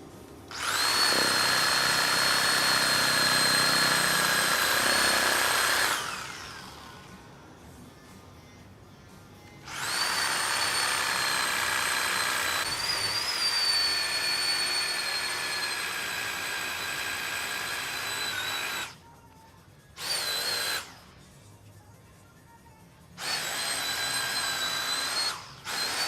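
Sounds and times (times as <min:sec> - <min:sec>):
power tool motor whining: 0:00.5 - 0:07.1, 0:09.6 - 0:19.0, 0:20.0 - 0:21.0, 0:23.2 - 0:26.0.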